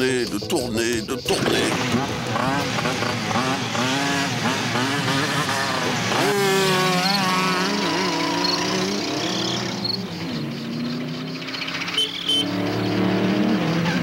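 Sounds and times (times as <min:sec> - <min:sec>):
vehicle engines revving: 0:00.0 - 0:14.0.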